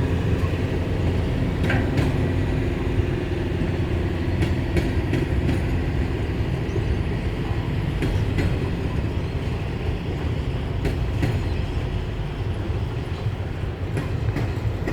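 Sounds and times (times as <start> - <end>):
freight train rumbling: 0.0 - 14.9
wheels clicking over rail joint: 13.1 - 14.9.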